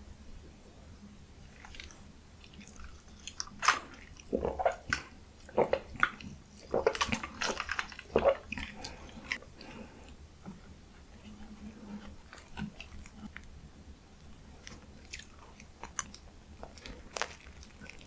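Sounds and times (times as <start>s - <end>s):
biting and chewing food: 1.5s - 10.2s, 11.1s - 13.6s, 14.3s - 18.0s
crunchy crackles: 15.1s - 18.0s.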